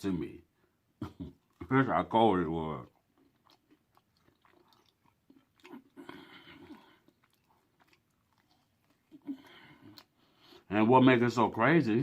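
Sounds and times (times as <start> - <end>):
person chewing: 1.1 - 1.8, 2.6 - 10.6.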